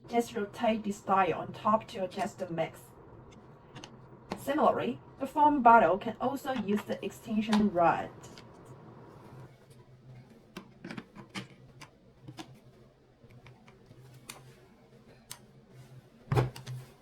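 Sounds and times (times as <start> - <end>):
faint low hum: 0.0 - 17.0
plastic parts clicking together: 10.6 - 12.6.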